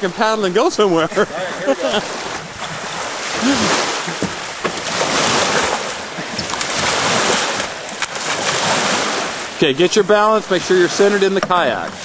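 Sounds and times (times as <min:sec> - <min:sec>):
ocean surf washing ashore: 0:00.0 - 0:12.0
wind on microphone: 0:02.0 - 0:09.6.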